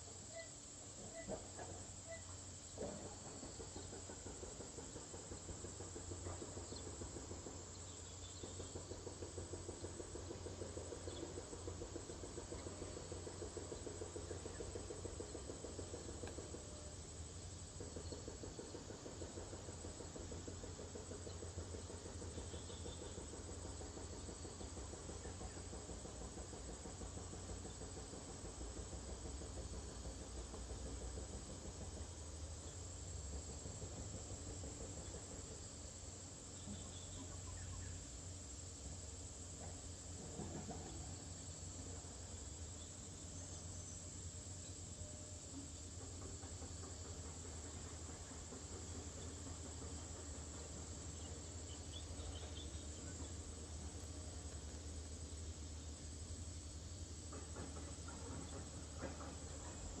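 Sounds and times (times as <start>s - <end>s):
insects chirring: 0.0s - 60.0s.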